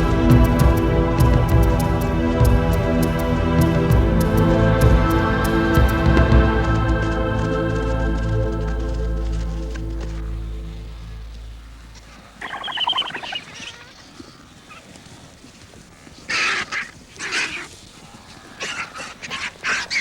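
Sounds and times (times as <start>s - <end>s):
music: 0.0s - 12.0s
birds squawking harshly: 12.2s - 14.1s, 16.3s - 17.8s.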